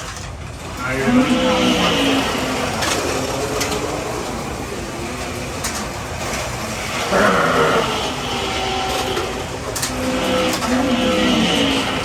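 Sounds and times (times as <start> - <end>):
toy slot cars whirring on track: 0.0 - 12.0.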